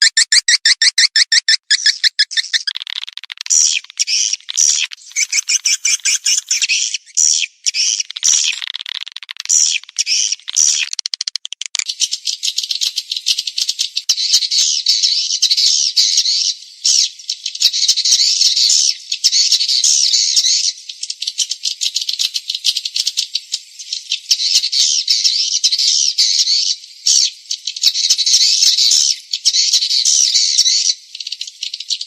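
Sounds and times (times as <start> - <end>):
swiftlet chirps and twitters: 0.0 - 16.5.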